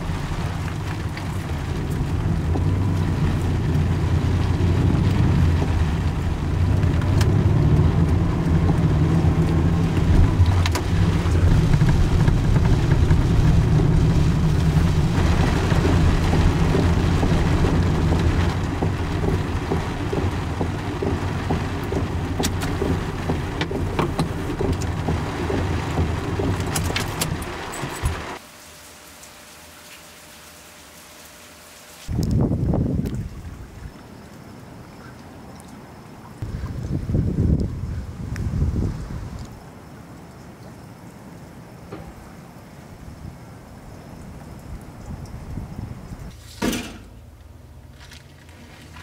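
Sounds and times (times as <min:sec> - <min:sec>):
deep rumble: 0:00.0 - 0:28.4
heavy rain pouring: 0:00.0 - 0:33.8.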